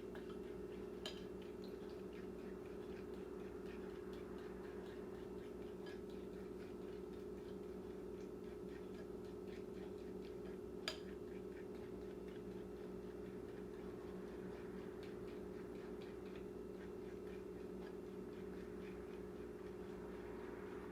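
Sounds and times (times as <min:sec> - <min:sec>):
low hum: 0:01.1 - 0:07.4, 0:12.9 - 0:20.9.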